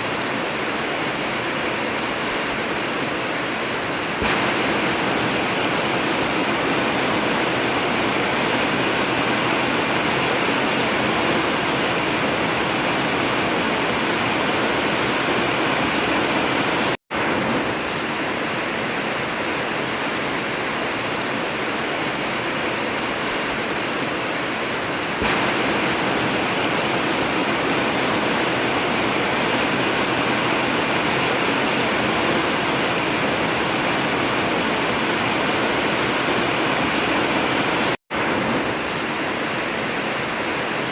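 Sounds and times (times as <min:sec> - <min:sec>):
heavy rain on a tin roof: 0:00.0 - 0:40.9.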